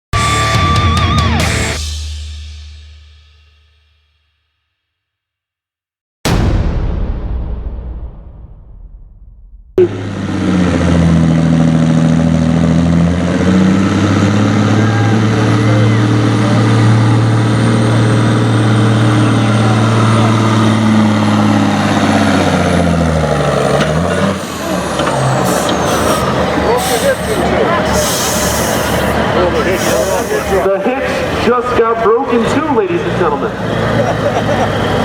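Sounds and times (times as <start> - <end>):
diesel truck engine under load: 9.8 - 35.0.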